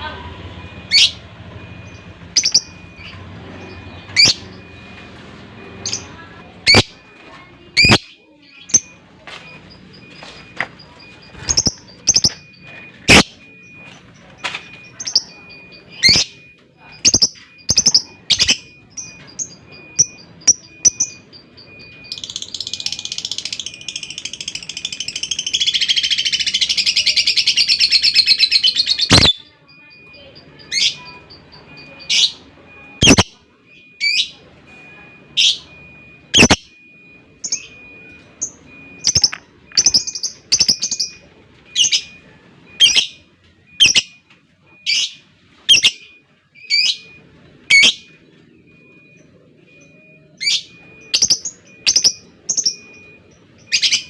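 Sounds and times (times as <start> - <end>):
lovebird chirps: 1.9 - 5.0, 7.7 - 16.4, 17.0 - 29.4, 30.1 - 35.7, 36.3 - 36.6, 37.4 - 42.2, 42.8 - 43.2, 43.8 - 44.2, 44.9 - 48.1, 49.8 - 54.0
lovebird chattering trill: 7.8 - 9.0, 22.1 - 29.4, 33.0 - 33.3, 36.4 - 36.6.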